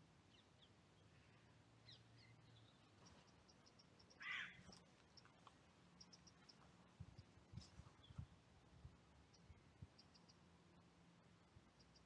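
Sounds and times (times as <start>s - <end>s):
faint birdsong chirps: 0.0s - 12.0s
crow cawing: 4.2s - 4.6s.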